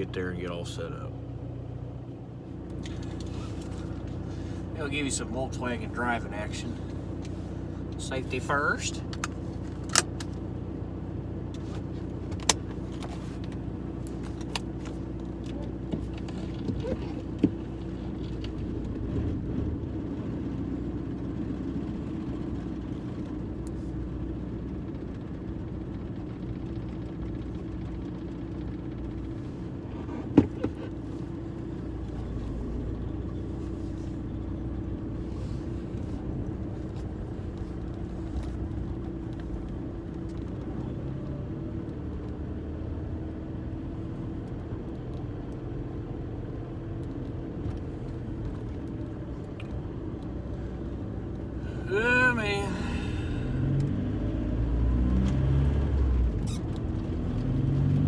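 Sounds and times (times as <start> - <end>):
car engine and road hum: 0.0 - 58.0.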